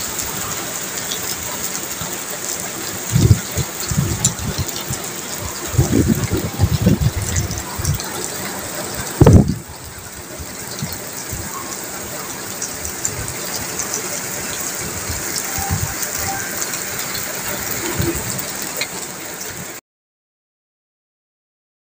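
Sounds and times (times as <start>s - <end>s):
steady rain falling: 0.0s - 19.8s
low rumbling bumps: 9.0s - 11.0s.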